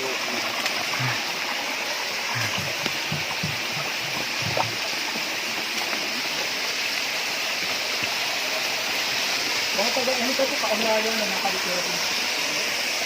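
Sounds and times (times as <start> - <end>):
stream rushing: 0.0 - 13.0
soft low knocks: 2.4 - 4.9.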